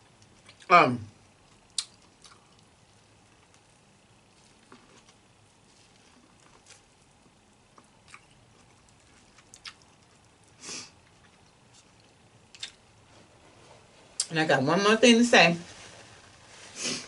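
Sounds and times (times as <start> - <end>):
chewing mouth noises: 1.5 - 2.7, 4.4 - 12.8.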